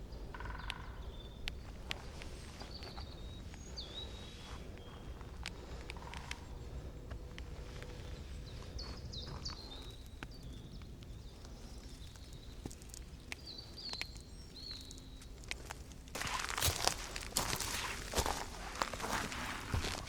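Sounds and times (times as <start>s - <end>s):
bird chirping: 0.0s - 15.6s
faint ticks: 4.8s - 8.2s.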